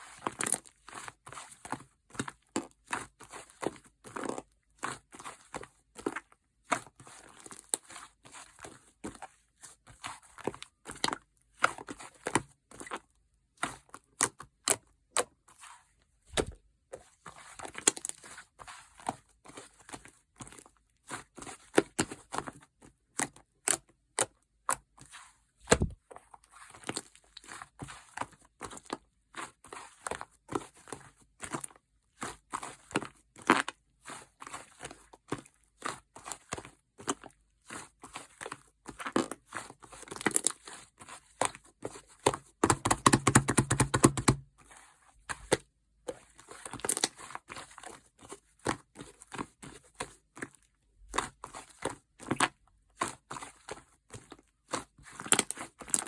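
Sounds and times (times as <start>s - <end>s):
hands squishing sticky slime: 13.6s - 26.0s, 26.6s - 56.0s.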